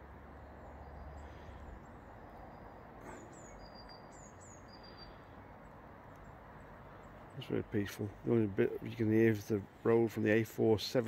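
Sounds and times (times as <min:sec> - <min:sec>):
distant road traffic: 0:00.0 - 0:11.0
small bird whistling song: 0:02.5 - 0:05.2.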